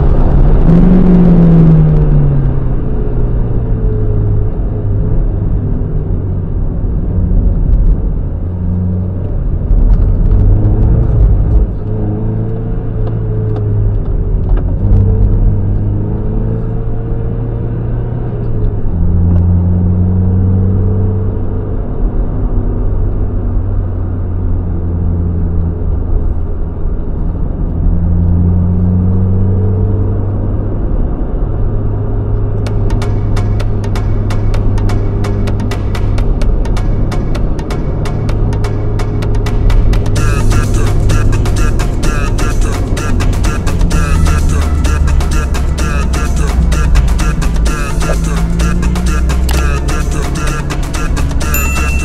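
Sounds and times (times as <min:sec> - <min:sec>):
car engine revving through gears: 0:00.0 - 0:22.5, 0:27.1 - 0:52.0.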